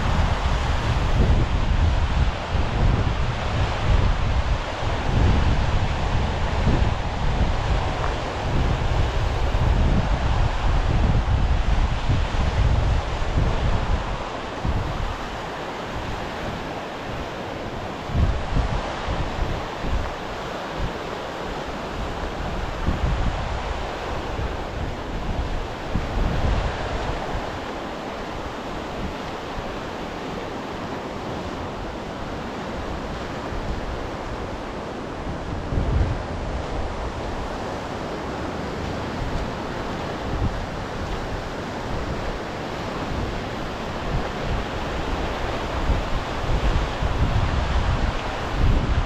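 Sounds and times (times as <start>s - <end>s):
sea surf washing on shore: 0.0s - 49.0s
wind buffeting microphone: 0.0s - 49.0s.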